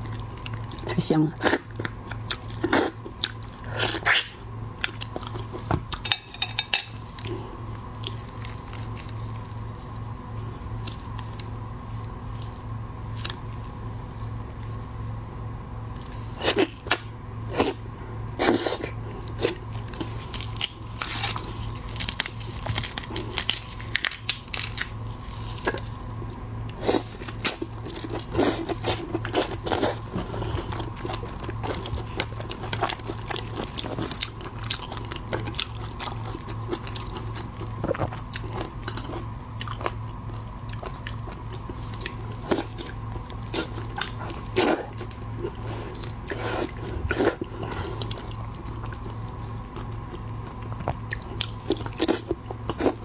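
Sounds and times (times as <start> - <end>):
steady low hum: 0.0 - 53.0
wet chewing: 7.0 - 14.8, 18.4 - 53.0.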